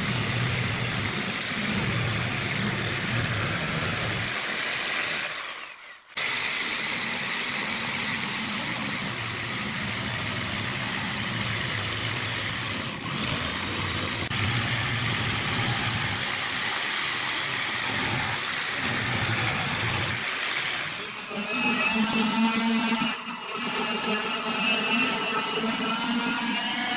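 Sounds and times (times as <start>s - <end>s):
woodworking power tool running: 0.0s - 26.9s.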